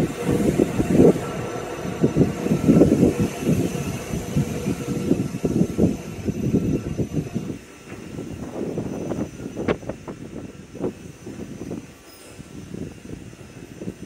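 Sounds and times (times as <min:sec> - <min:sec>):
train wheels rumbling on track: 0:00.0 - 0:14.0.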